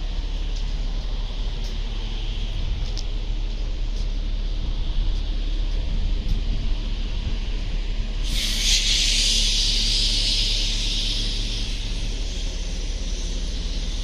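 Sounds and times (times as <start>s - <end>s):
low rumble: 0.0s - 14.0s
compressed air hissing: 8.2s - 14.0s.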